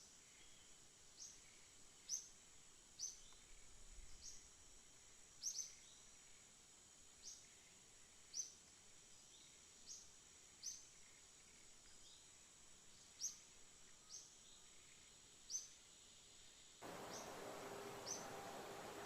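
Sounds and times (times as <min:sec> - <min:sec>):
bird chirping: 0:16.8 - 0:19.0.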